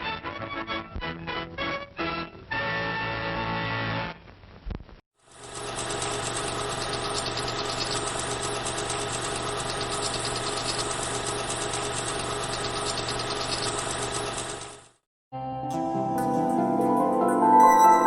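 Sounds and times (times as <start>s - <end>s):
film projector whirring: 5.2s - 15.0s.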